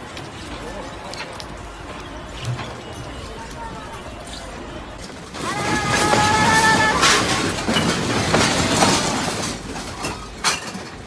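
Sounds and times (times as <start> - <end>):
rattling and crashing: 5.0 - 11.0
sharp breaking impacts: 5.1 - 10.8.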